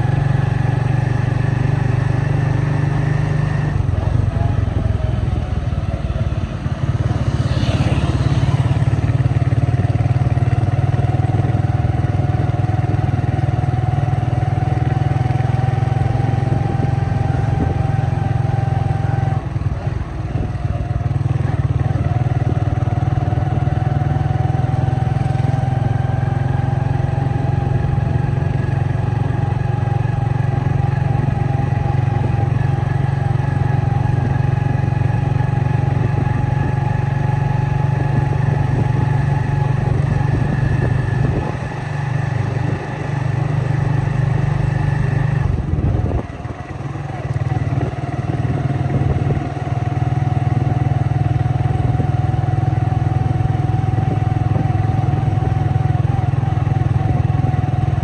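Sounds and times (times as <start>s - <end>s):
vehicle engine rumbling: 0.0s - 58.0s.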